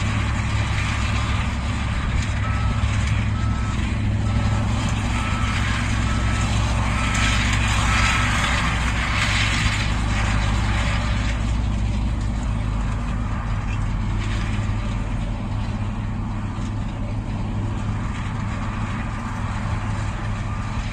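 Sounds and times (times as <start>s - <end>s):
diesel engine droning under load: 0.0s - 20.9s
reversing alarm beeping: 2.3s - 8.7s.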